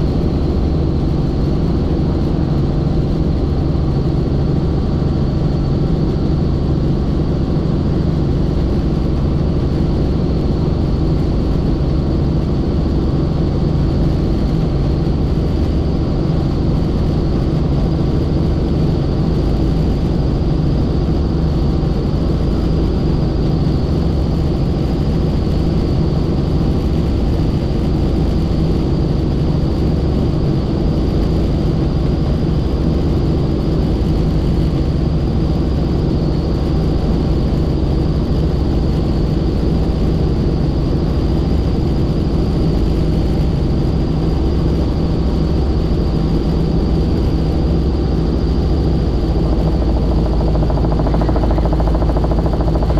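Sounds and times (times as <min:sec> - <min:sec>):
helicopter rotor and engine drone: 0:00.0 - 0:52.9
thin high whine: 0:47.5 - 0:52.9.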